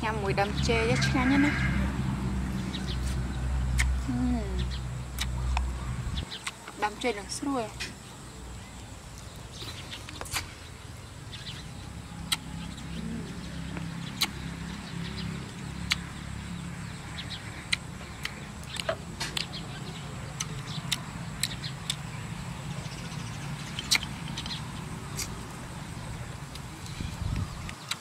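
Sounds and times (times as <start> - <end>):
steady low rumble: 0.0 - 27.9
chewing and wet smacks: 5.1 - 5.7, 6.3 - 6.8, 12.2 - 16.2, 17.4 - 22.2, 23.6 - 25.5.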